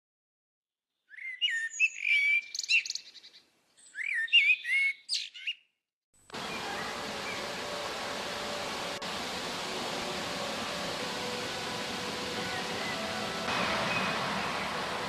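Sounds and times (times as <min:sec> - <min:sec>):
songbird singing: 0:01.0 - 0:05.7, 0:06.4 - 0:09.0, 0:10.9 - 0:15.0
steady hiss: 0:06.3 - 0:15.0.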